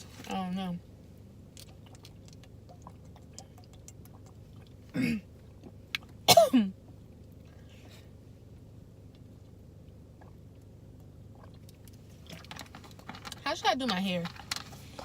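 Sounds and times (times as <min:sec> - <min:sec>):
woman coughing: 0:04.9 - 0:05.3, 0:06.3 - 0:06.7.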